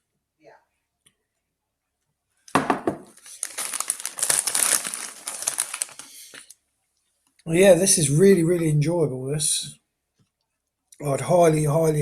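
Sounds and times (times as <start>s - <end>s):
crisp packet crinkling: 3.0s - 6.6s.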